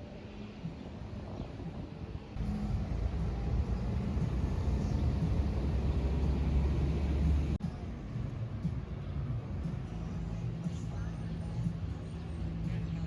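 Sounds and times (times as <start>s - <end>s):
motor vehicle rumbling: 2.4s - 7.6s.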